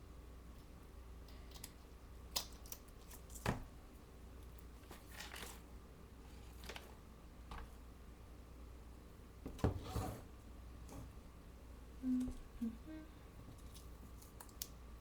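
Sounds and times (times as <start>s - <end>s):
faint steady hum: 0.0s - 15.0s
paper rustle: 4.8s - 5.7s, 6.3s - 7.7s.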